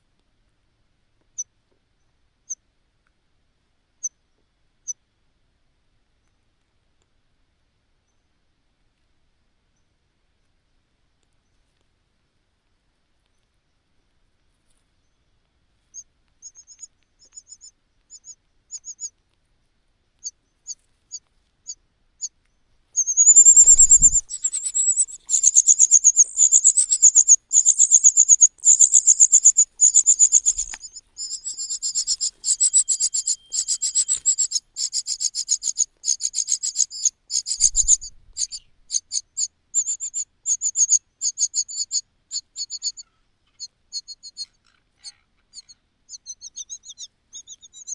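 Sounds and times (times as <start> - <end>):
chick begging calls: 23.0 - 38.6.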